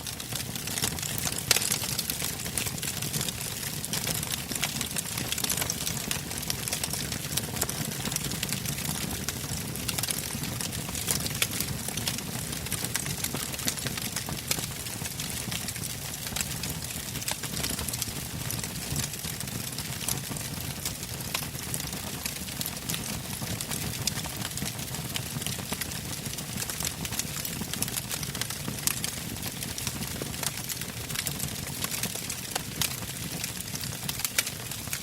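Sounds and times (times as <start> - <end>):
wood fire crackling: 0.0 - 35.0
low rumble of flames: 0.1 - 24.2.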